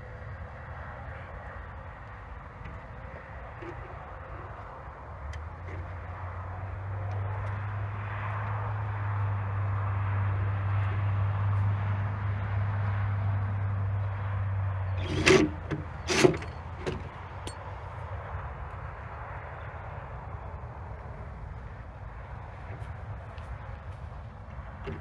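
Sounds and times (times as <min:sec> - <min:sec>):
engine humming: 0:00.0 - 0:25.0
loud metal clanks: 0:15.0 - 0:17.6.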